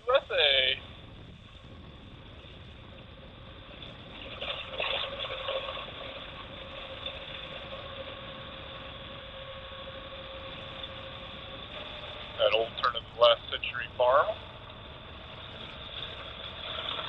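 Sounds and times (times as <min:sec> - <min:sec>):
motorcycle engine hum: 0:00.0 - 0:17.0
road noise: 0:00.0 - 0:17.0
wind rush: 0:00.0 - 0:17.0.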